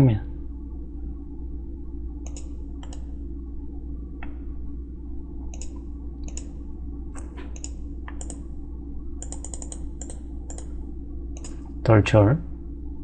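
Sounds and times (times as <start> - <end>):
low electrical hum: 0.0 - 13.0
computer mouse clicks: 2.2 - 3.1, 5.5 - 6.6, 7.2 - 8.4, 9.2 - 10.7, 11.4 - 11.7.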